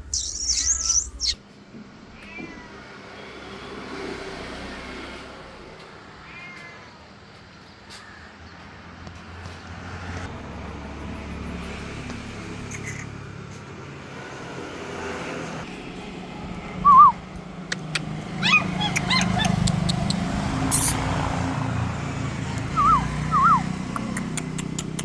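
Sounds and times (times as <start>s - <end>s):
cat meowing: 2.2s - 2.9s, 6.2s - 7.0s, 18.3s - 20.1s.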